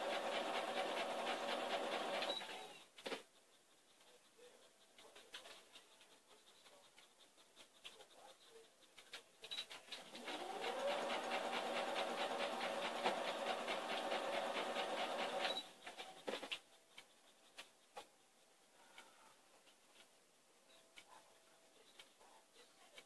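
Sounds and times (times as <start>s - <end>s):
sewing machine running: 0.0s - 2.4s, 10.1s - 15.6s.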